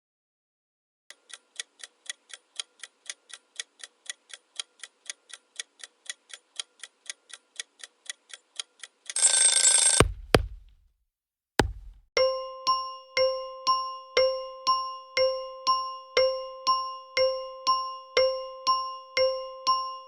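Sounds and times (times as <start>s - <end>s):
sharp knocks: 10.0s - 10.8s, 11.6s - 12.0s.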